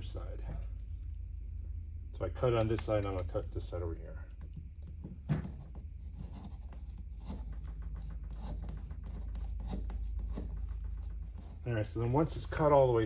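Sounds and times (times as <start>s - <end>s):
sharp click: 2.6s - 3.5s.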